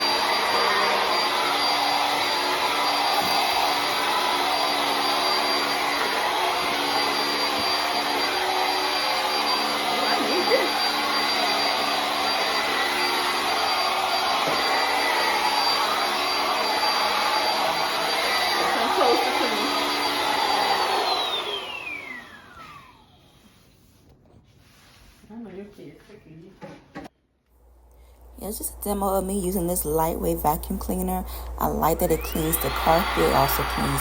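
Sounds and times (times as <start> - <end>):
stick vacuum running: 0.0 - 23.2, 30.9 - 34.0.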